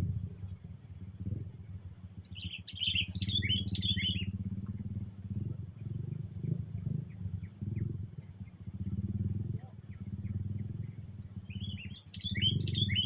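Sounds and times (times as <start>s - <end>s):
steady low rumble: 0.0s - 13.0s
bird chattering chirps: 2.2s - 13.0s.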